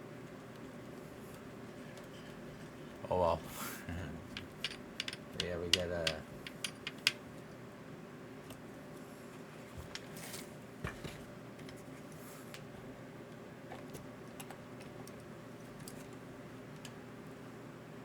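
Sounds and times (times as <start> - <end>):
steady background hum: 0.0 - 18.0
small parts and tools clicking: 4.3 - 7.2.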